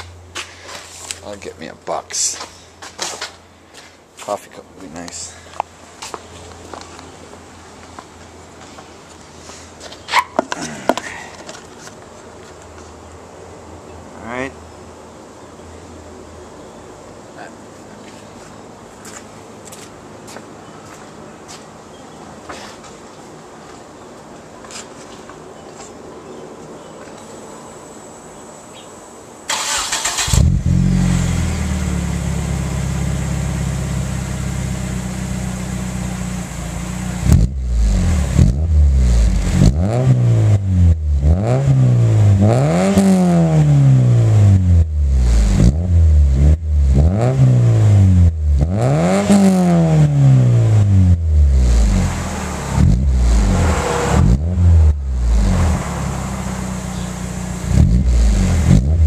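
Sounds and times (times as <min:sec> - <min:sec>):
car engine idling: 0:29.5 - 0:39.8
car engine revving: 0:29.5 - 0:59.0
car engine starting: 0:29.5 - 0:59.0.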